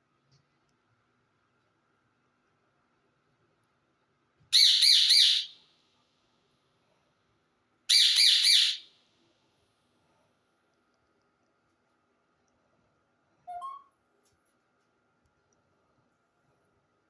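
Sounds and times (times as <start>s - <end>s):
parrot squawking: 4.6s - 5.5s, 7.9s - 8.8s.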